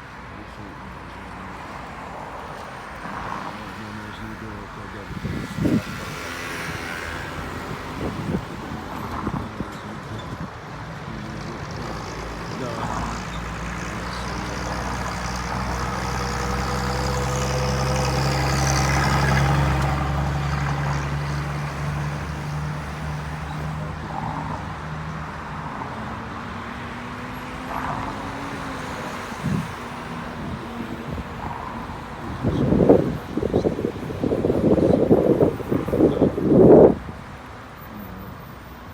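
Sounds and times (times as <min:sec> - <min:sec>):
vehicle engine passing by: 0:11.1 - 0:37.2.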